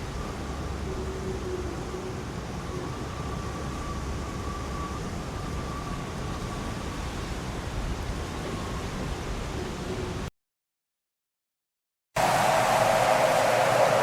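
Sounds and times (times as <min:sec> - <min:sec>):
wavering whistle: 0:12.2 - 0:14.0
wind rumbling: 0:12.2 - 0:14.0.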